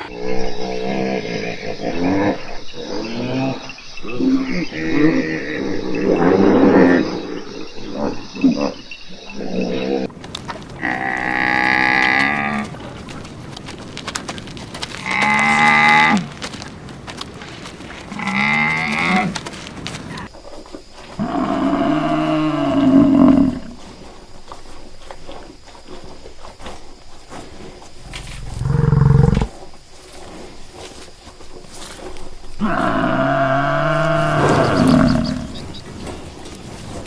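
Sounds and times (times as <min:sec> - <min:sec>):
cattle mooing: 0:21.2 - 0:23.8, 0:28.0 - 0:29.6, 0:32.6 - 0:35.8.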